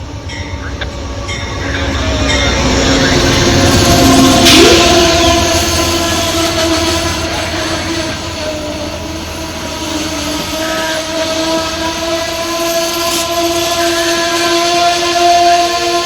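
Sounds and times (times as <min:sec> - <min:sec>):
train rumble: 0:00.0 - 0:16.0
steady pitched tone: 0:00.7 - 0:07.5.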